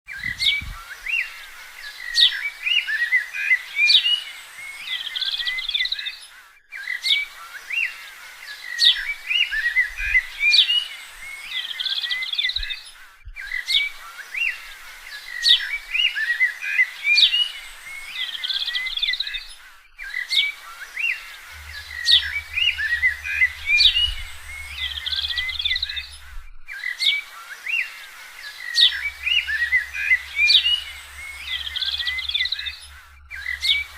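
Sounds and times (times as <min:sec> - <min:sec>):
birds chirping and trilling: 0:00.1 - 0:33.9
low hum: 0:21.2 - 0:26.7, 0:28.8 - 0:33.9.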